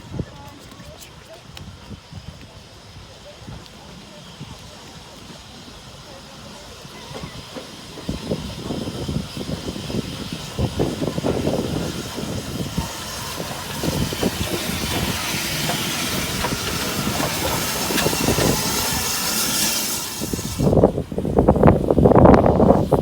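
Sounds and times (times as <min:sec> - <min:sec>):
steam locomotive hissing: 0:00.0 - 0:23.0
wind buffeting microphone: 0:00.0 - 0:23.0.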